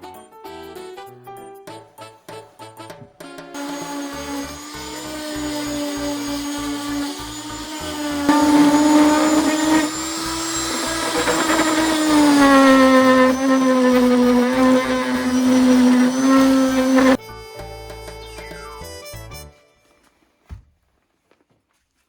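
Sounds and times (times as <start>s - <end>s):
power tool motor whine: 3.6s - 17.2s
background music: 17.2s - 19.7s.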